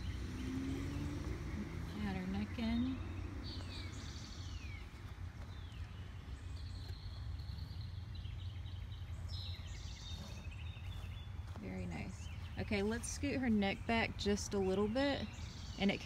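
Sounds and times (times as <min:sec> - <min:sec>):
birds singing: 0:00.0 - 0:16.0.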